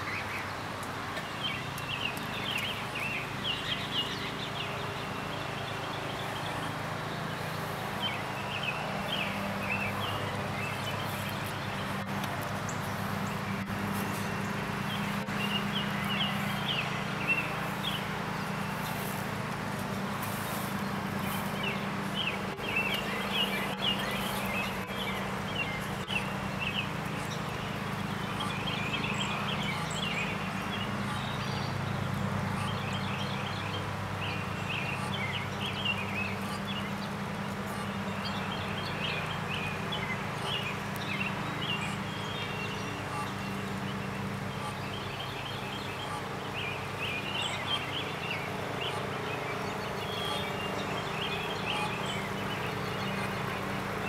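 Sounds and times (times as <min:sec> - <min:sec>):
birds chirping: 0:00.0 - 0:54.0
steady low hum: 0:00.0 - 0:54.0.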